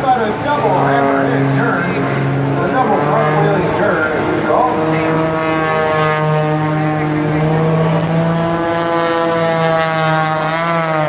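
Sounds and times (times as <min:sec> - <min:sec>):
propeller plane engine droning: 0:00.0 - 0:11.0.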